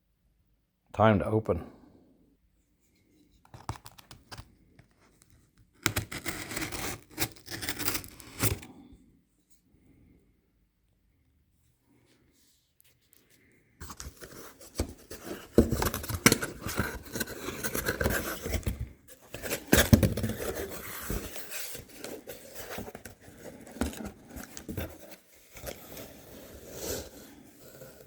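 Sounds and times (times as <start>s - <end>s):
cardboard box being cut and torn: 5.8s - 8.7s, 13.8s - 28.0s.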